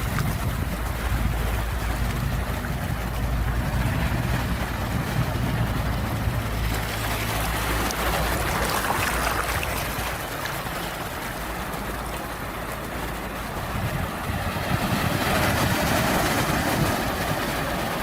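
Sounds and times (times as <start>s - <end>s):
ocean surf rumble: 0.0s - 18.0s
wave washing in: 0.0s - 18.0s.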